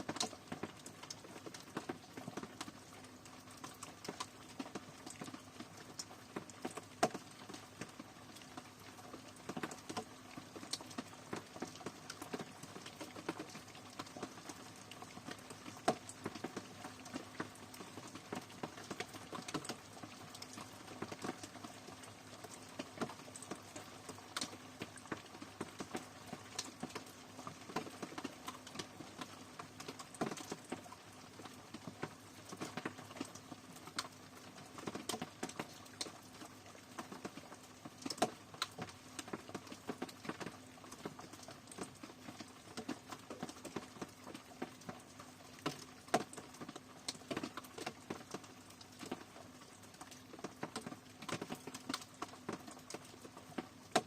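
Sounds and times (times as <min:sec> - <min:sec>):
rain drops pattering on hard surface: 0:00.0 - 0:54.0
soft rain hiss: 0:00.0 - 0:54.0.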